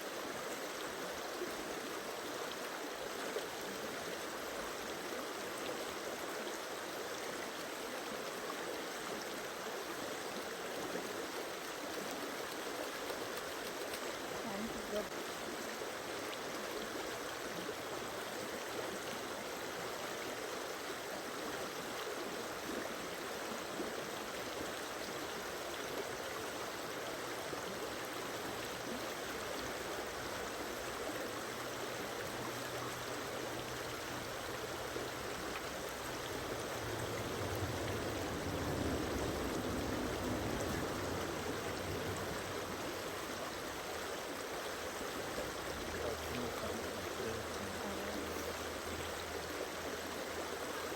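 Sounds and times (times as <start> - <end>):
flowing stream: 0.0 - 50.9
low rumble: 36.1 - 43.1.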